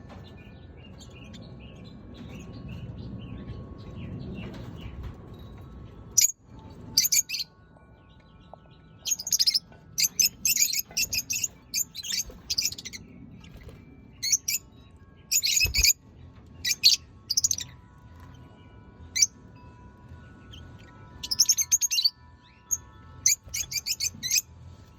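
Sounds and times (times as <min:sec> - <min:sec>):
lovebirds chirping: 0:06.2 - 0:07.5, 0:08.1 - 0:24.4.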